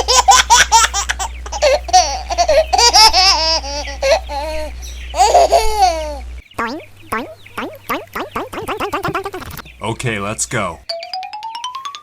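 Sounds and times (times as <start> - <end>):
high-pitched laughter: 0.0 - 7.4.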